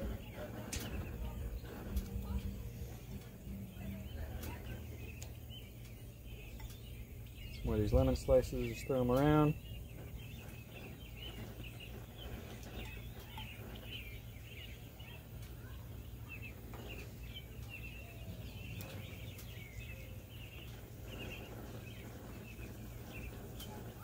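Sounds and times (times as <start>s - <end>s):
low steady rumble: 0.0s - 24.0s
small birds chirping: 0.0s - 24.0s.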